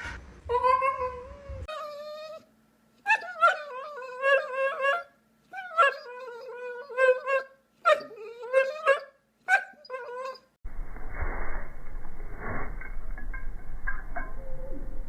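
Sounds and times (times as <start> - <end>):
dog whining: 0.5 - 10.5.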